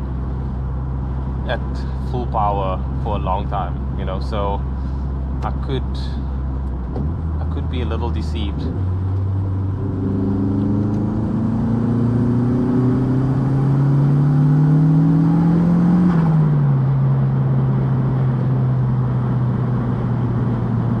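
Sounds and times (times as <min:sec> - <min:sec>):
turbocharged car engine accelerating: 0:06.7 - 0:21.0.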